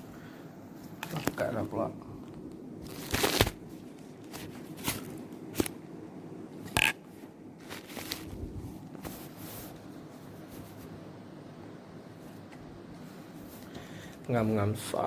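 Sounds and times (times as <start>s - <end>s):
plastic packaging crinkling: 1.0s - 5.8s, 7.6s - 9.0s.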